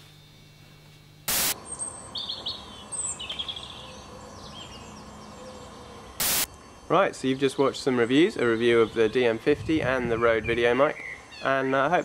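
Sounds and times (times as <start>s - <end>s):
steady outdoor hiss: 1.2s - 12.0s
short loud burst of noise: 1.3s - 1.6s, 6.2s - 6.5s
small birds chirping and trilling: 1.6s - 12.0s.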